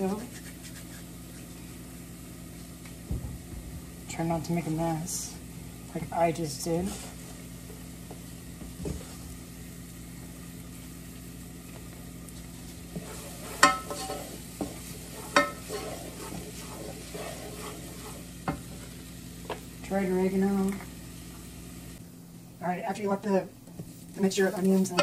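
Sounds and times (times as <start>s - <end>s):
onion sizzling in oil: 0.0s - 22.0s
wooden spoon stirring: 12.3s - 19.1s.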